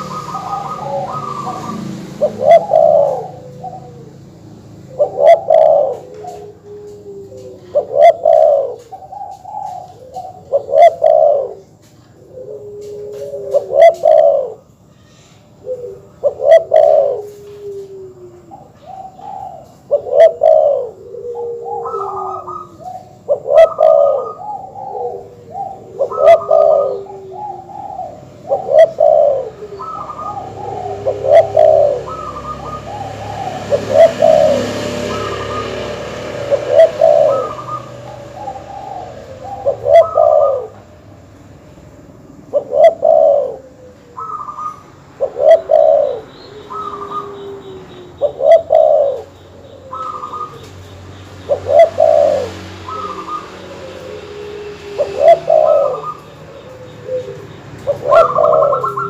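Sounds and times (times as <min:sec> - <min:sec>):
doves cooing: 0:00.0 - 0:59.0.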